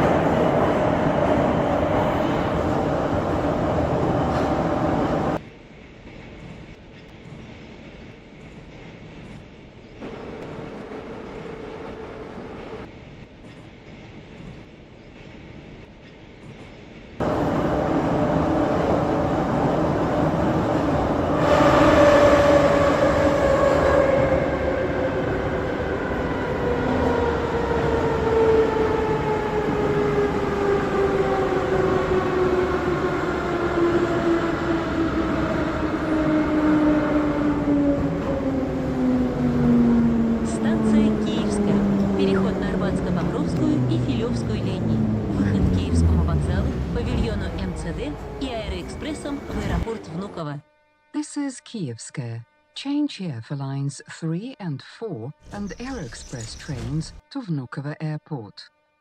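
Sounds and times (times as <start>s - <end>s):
subway train rumble: 0.0s - 50.4s
traction motor whine: 21.6s - 50.4s.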